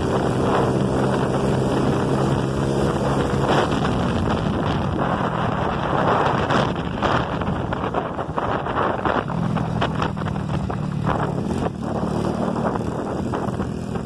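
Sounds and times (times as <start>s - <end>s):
small motorcycle engine running: 0.0s - 14.0s
wind noise on microphone: 0.0s - 14.0s.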